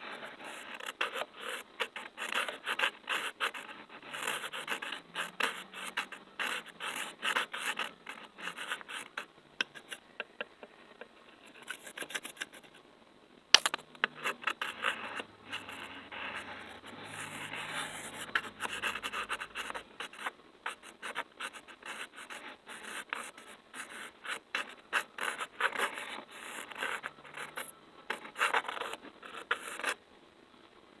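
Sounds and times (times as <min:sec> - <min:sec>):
tapping and scratching on object: 0:13.6 - 0:14.7.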